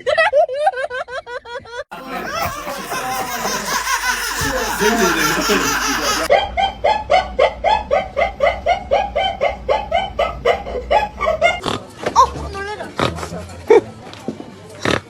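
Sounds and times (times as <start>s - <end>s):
person laughing: 1.9s - 6.3s.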